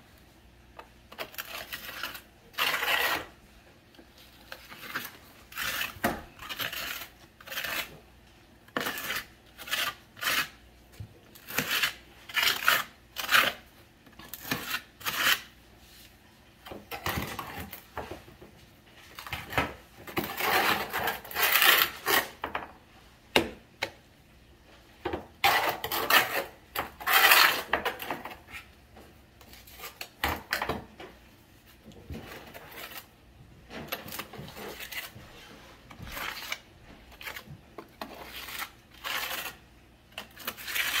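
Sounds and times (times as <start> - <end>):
metal hand tool scraping tile: 1.1 - 3.4, 4.5 - 8.0, 8.8 - 10.6, 11.4 - 13.6, 14.2 - 15.5, 20.1 - 22.4, 25.4 - 28.7, 33.7 - 36.6, 37.2 - 39.6, 40.2 - 41.0.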